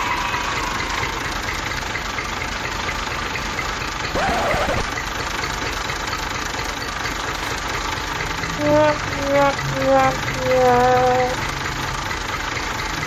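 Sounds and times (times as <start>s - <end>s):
short pitched sound: 8.4s - 11.5s
toy motor buzzing rattle: 8.5s - 11.4s.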